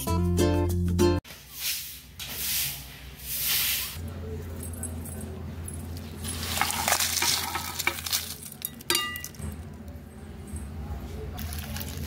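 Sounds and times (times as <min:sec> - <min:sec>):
dry spices rattling and scraping: 0:05.9 - 0:09.8, 0:11.3 - 0:12.0.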